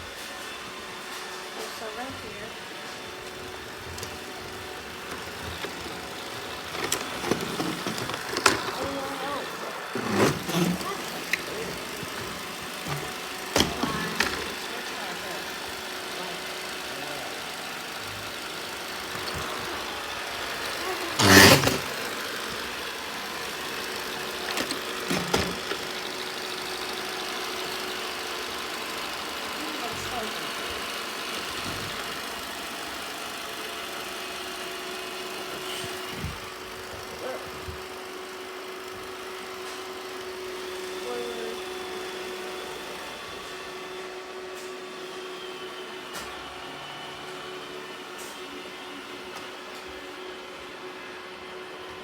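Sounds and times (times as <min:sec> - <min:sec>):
robot vacuum running: 0:00.0 - 0:52.0.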